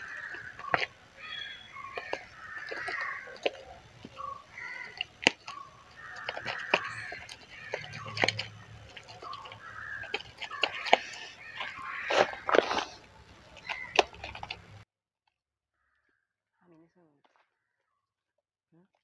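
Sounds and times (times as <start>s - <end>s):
slime squelching in a bowl: 0.0s - 14.8s.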